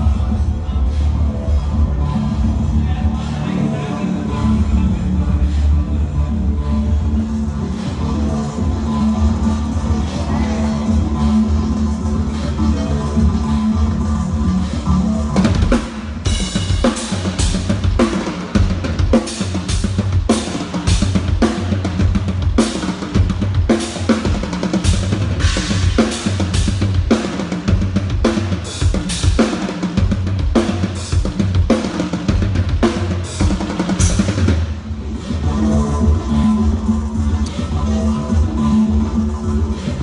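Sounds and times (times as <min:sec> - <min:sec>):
sustained bass line: 0:00.0 - 0:40.0
drum kit playing with band: 0:06.9 - 0:35.4.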